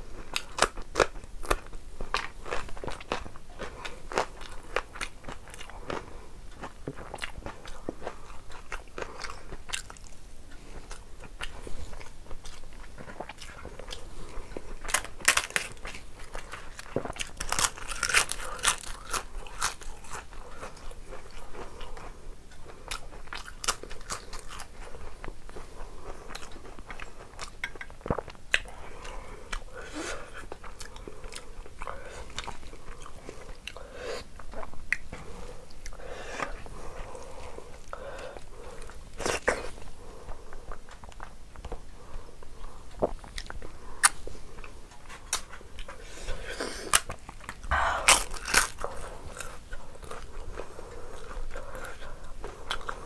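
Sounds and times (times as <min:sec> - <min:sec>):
chewing and biting: 0:00.3 - 0:33.8, 0:42.9 - 0:53.0
crisp papadum crunching: 0:10.9 - 0:33.8, 0:42.9 - 0:53.0.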